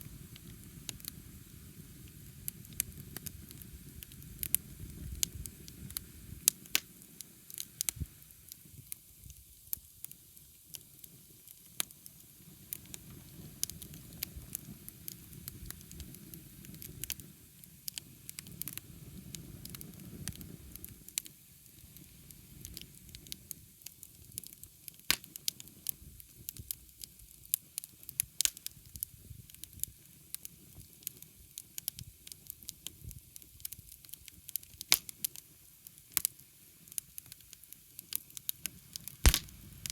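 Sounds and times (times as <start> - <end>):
low rumble of flame: 0.0 - 9.9, 11.1 - 24.7, 38.6 - 39.9
wood fire crackling and popping: 0.0 - 39.9.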